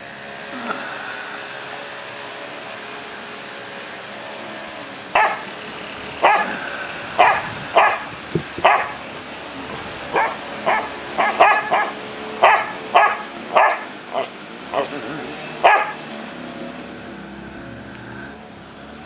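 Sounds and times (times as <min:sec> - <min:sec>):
dog barking: 0:05.2 - 0:05.5, 0:06.2 - 0:06.6, 0:07.2 - 0:09.0, 0:10.1 - 0:14.9, 0:15.6 - 0:16.0.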